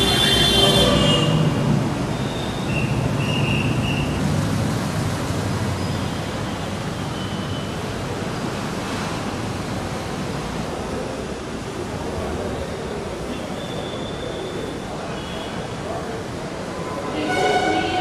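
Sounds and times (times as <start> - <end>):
metro train rumbling on track: 15.8 - 18.0.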